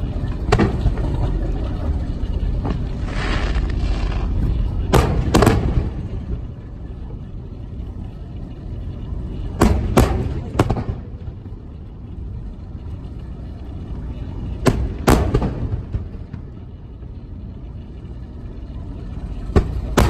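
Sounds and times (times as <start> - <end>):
steady low rumble: 0.0 - 20.0
fireworks bangs: 0.4 - 1.1, 2.6 - 6.5, 9.6 - 11.2, 14.6 - 16.5, 19.5 - 20.0.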